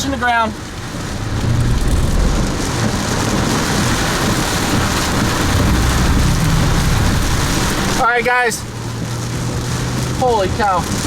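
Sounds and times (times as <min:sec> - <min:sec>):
heavy rain: 0:00.0 - 0:11.0
wind: 0:00.0 - 0:11.0
low rumble: 0:00.8 - 0:10.0.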